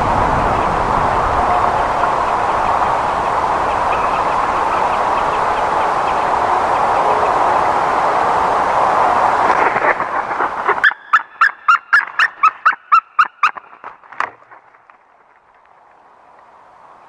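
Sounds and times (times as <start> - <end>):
loud steady rushing noise: 0.0 - 10.8
woodpecker calling clear notes: 1.6 - 7.4, 10.8 - 13.9.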